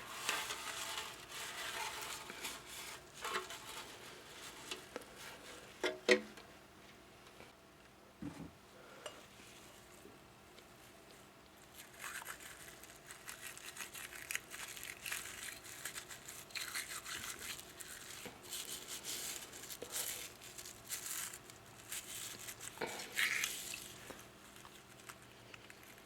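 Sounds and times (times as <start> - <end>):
small brush scrubbing: 0.0 - 5.7, 11.6 - 26.0.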